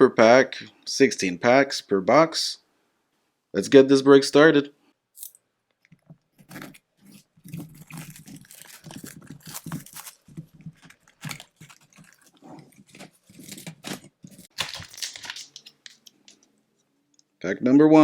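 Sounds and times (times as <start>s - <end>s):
packaging crinkling and tearing: 6.4s - 16.4s.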